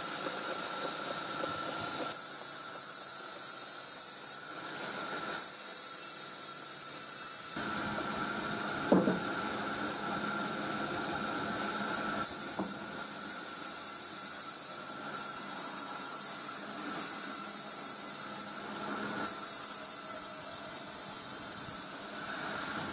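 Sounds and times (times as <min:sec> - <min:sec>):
sawmill saw cutting log: 0:00.0 - 0:22.9
sharp knock: 0:08.9 - 0:09.2.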